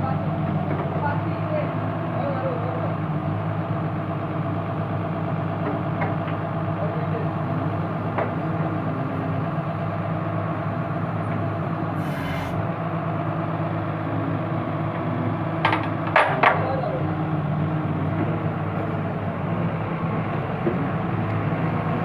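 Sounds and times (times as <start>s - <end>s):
diesel engine idling: 0.0s - 22.0s
short hiss: 12.0s - 12.6s.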